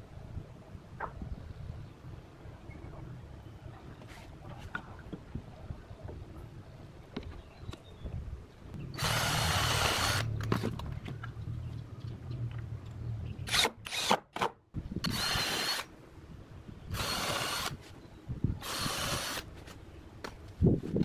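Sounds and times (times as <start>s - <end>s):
power drill running: 9.0s - 10.2s, 15.0s - 15.8s, 16.9s - 17.7s, 18.6s - 19.4s.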